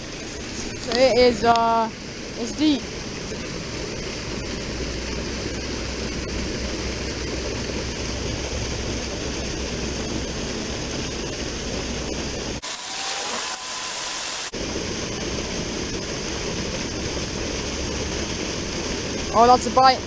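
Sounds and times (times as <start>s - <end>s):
waterfall pouring into pool: 12.6s - 14.5s.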